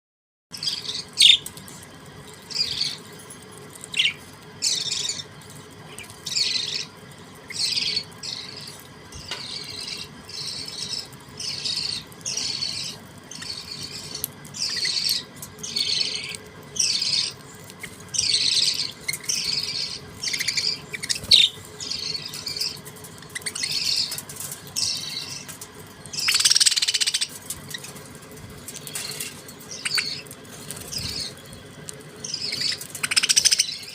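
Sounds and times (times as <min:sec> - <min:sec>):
budgerigars chirping: 0:07.5 - 0:17.4, 0:18.1 - 0:24.2, 0:24.8 - 0:28.0, 0:28.8 - 0:31.5, 0:32.2 - 0:33.9.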